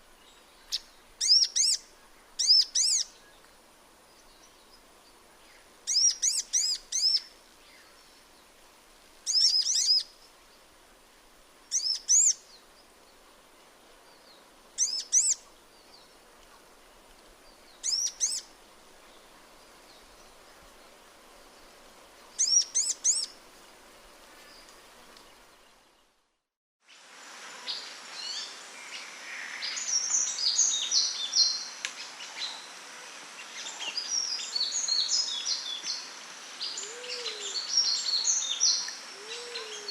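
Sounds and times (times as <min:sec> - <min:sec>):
bird twittering song: 0:00.2 - 0:03.5, 0:05.4 - 0:08.2, 0:09.3 - 0:10.1, 0:11.7 - 0:12.6, 0:14.1 - 0:16.2, 0:17.5 - 0:18.5, 0:22.4 - 0:23.3
bird chirping in short bursts: 0:01.2 - 0:01.8, 0:17.8 - 0:18.4, 0:22.4 - 0:23.3.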